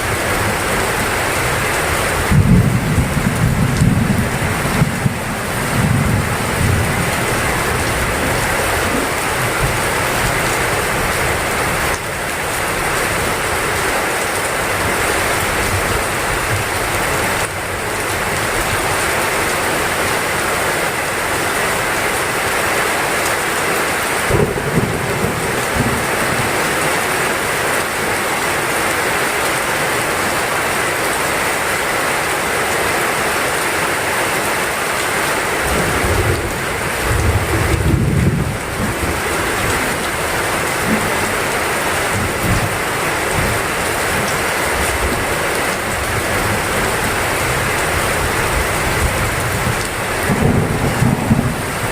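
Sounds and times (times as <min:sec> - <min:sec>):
thunder rumbling: 0:00.0 - 0:12.0, 0:24.3 - 0:27.1, 0:35.7 - 0:51.9
heavy rain falling: 0:00.0 - 0:51.9.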